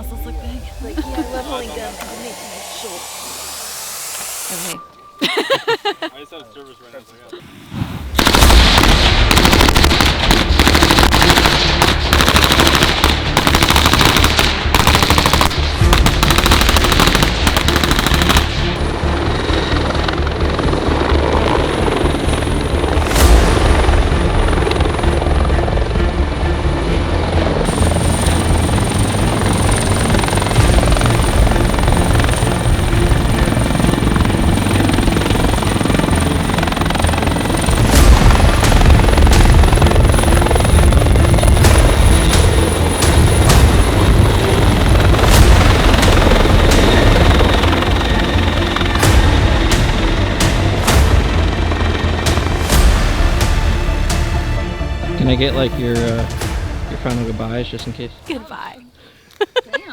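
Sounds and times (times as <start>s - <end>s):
faint high whine: 0.0s - 7.4s
helicopter rotor and engine: 0.0s - 7.4s, 8.2s - 58.8s.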